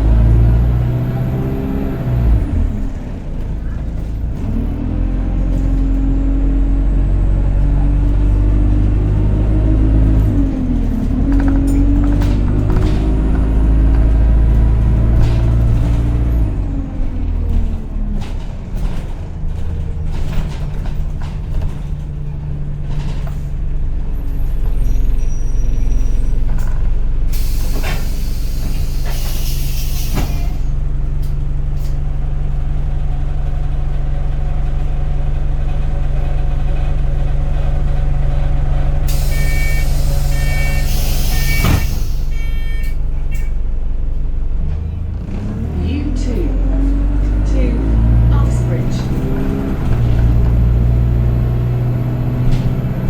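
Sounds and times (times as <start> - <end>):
bus engine running: 0.0 - 53.0
air hissing bursts: 39.1 - 42.6
short high beeps: 42.3 - 43.0.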